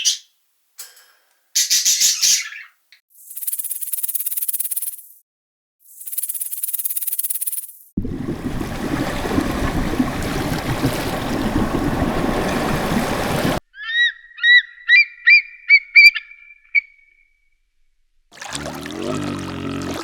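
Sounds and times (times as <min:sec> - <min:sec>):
rough rushing noise: 0:08.0 - 0:13.6.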